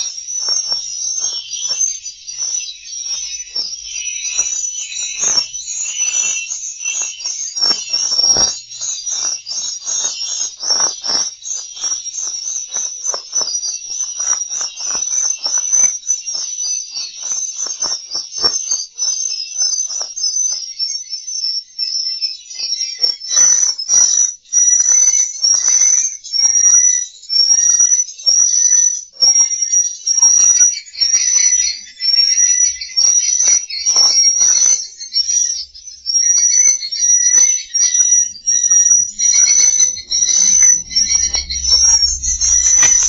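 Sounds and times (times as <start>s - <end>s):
rapid clicking: 0.0s - 19.0s, 38.7s - 43.0s
swiftlets twittering chirps: 0.0s - 43.0s.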